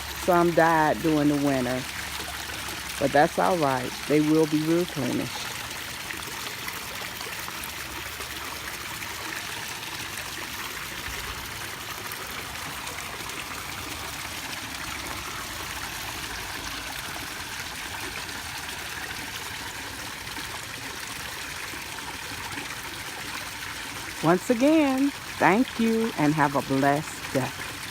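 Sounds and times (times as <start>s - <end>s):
waterfall trickling and splashing: 0.0s - 27.9s.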